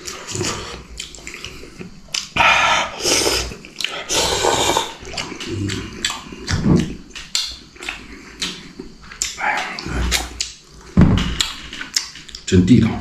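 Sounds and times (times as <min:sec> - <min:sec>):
chewing clicks: 0:00.8 - 0:02.4, 0:03.5 - 0:04.1, 0:05.0 - 0:12.5
man slurping noodles: 0:02.7 - 0:06.0.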